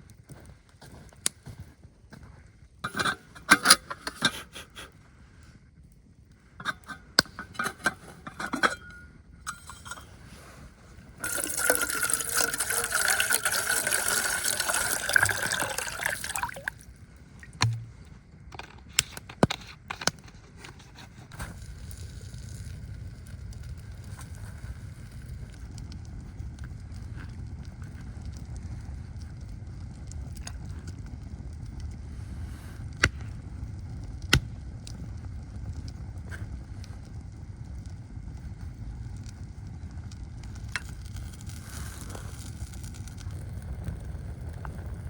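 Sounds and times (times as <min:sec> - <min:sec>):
liquid pouring: 0:11.2 - 0:18.1.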